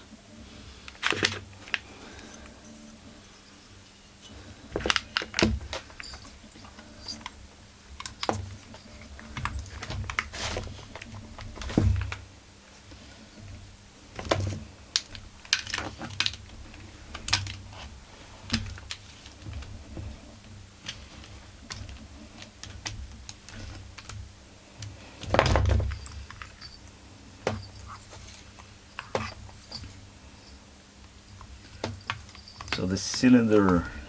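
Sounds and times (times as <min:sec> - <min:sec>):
metal parts clicking and knocking: 0:04.8 - 0:07.4, 0:31.3 - 0:34.0.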